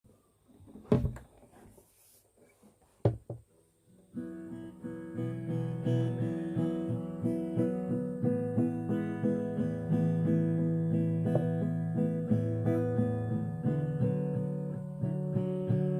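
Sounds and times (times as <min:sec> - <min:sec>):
acoustic guitar strumming: 0:04.1 - 0:15.9.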